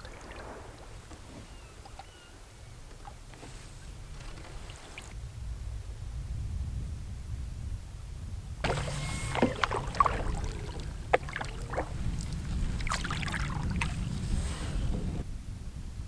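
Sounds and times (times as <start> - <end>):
paddle splashes: 0.0 - 5.2, 8.6 - 15.2
wind rumble on microphone: 0.0 - 16.0
paddle knocking on hull: 8.6 - 15.2.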